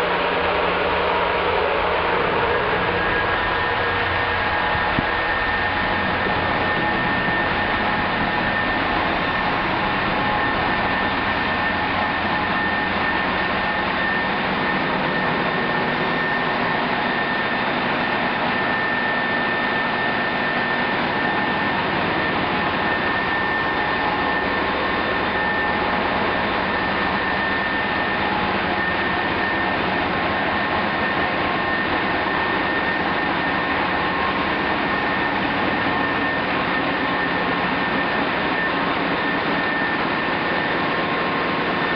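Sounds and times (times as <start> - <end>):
engine-room machinery din: 0.0 - 41.9
high machine whine: 0.0 - 41.9.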